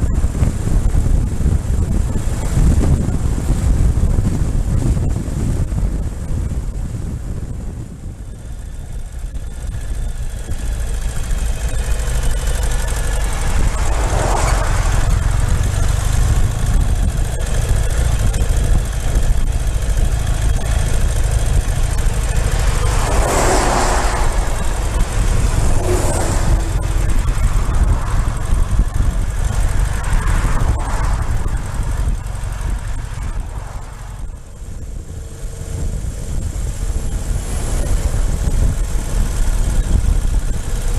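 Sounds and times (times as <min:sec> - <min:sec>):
motorcycle engine rumbling: 0:00.0 - 0:40.9
rushing swells: 0:21.2 - 0:32.6.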